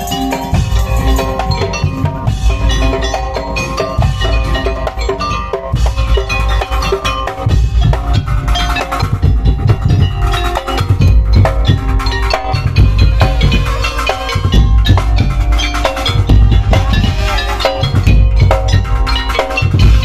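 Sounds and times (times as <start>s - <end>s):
melody of held notes: 0.0s - 20.0s
pounding drums: 0.0s - 20.0s.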